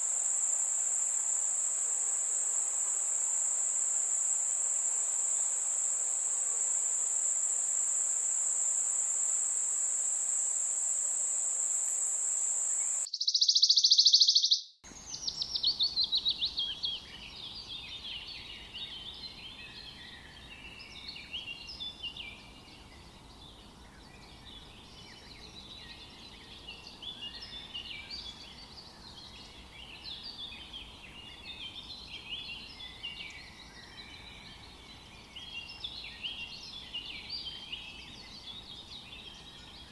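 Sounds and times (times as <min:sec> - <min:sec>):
high cricket drone: 0:00.0 - 0:13.1
birds chirping and twittering: 0:12.8 - 0:39.9.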